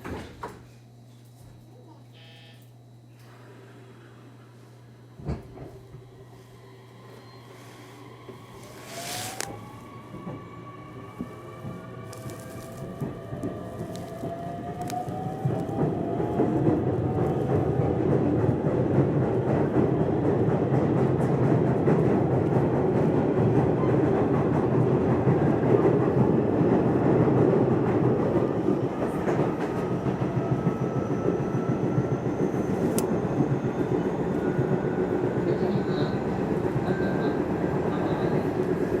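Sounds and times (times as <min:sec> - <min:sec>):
faint train whine: 0:01.7 - 0:39.0
train wheels rumbling on rail: 0:08.1 - 0:39.0.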